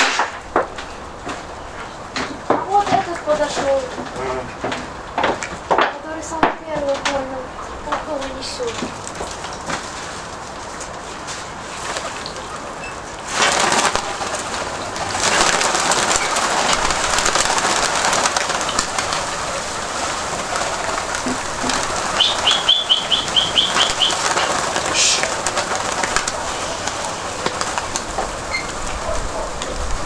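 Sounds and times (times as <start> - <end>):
steady rushing noise: 13.5 - 30.0
small bird chirping: 21.2 - 25.3.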